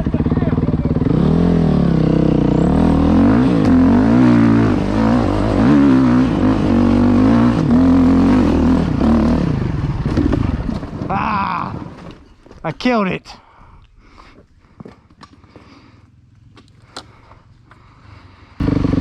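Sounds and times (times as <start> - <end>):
dirt bike engine revving: 0.0 - 12.1, 18.6 - 19.0.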